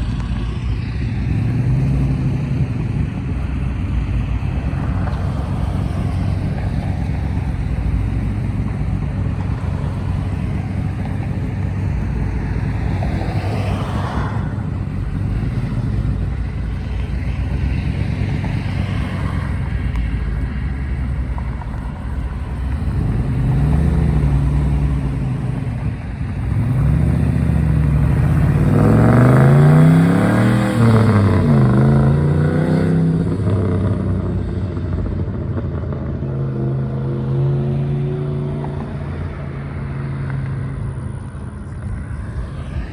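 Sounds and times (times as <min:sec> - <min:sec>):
car engines rumbling: 0:00.0 - 0:42.9
car accelerating through gears: 0:21.0 - 0:41.2.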